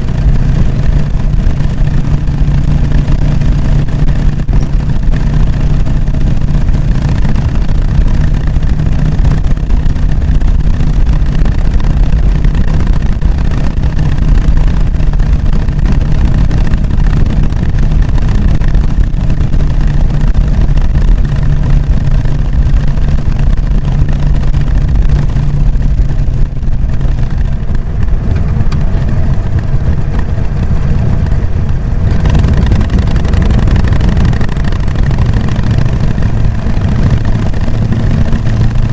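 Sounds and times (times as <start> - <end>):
motorcycle engine lumpy beat: 0.0 - 38.9.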